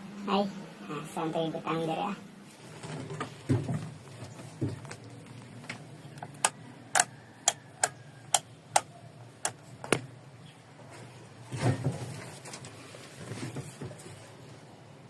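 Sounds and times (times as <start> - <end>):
starter relay clicking: 6.2 - 9.6.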